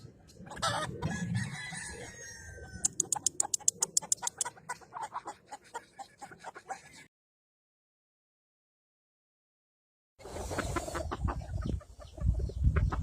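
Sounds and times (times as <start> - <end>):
rooster crowing: 0.6 - 3.0
fast sharp clicks: 2.8 - 4.5.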